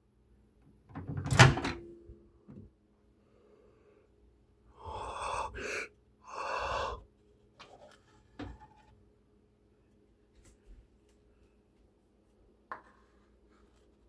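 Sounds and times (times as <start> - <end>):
loud breaths: 4.7 - 7.1.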